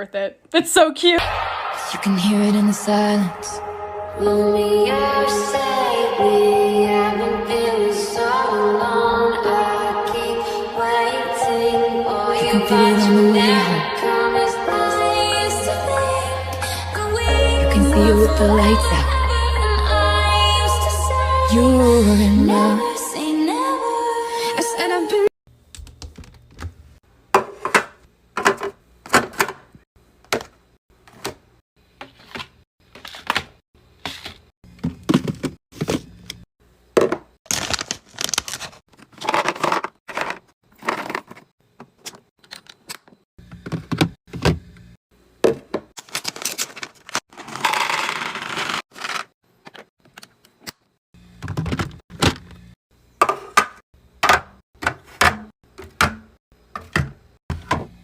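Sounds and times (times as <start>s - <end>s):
packaging rustling and scraping: 37.5s - 41.5s, 46.0s - 49.8s
containers knocking on fridge shelves: 53.2s - 58.0s.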